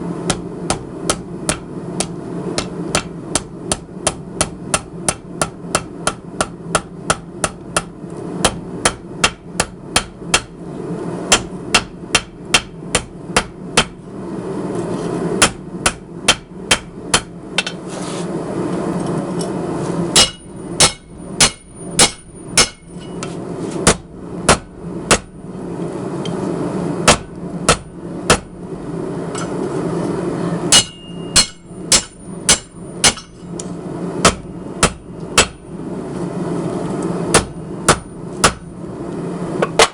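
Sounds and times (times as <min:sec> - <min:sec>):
steady low rumble: 0:00.0 - 0:39.6
hammer striking steel on anvil: 0:00.3 - 0:10.6, 0:11.3 - 0:14.0, 0:15.4 - 0:17.8, 0:19.4 - 0:25.3, 0:27.0 - 0:28.5, 0:29.3 - 0:29.6, 0:30.7 - 0:33.6, 0:34.2 - 0:35.6, 0:37.3 - 0:38.7.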